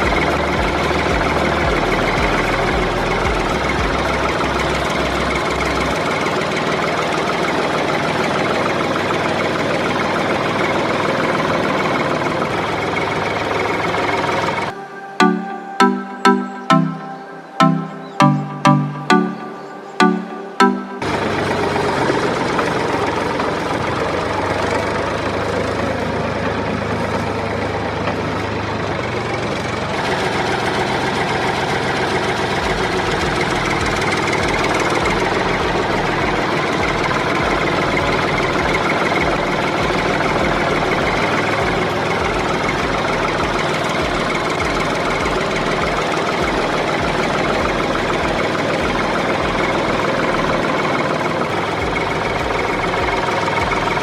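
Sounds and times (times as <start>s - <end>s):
regular low beat: 0.0s - 6.1s, 14.7s - 21.3s, 32.6s - 50.7s
engine running with knocking chug: 0.0s - 14.7s, 21.0s - 54.0s.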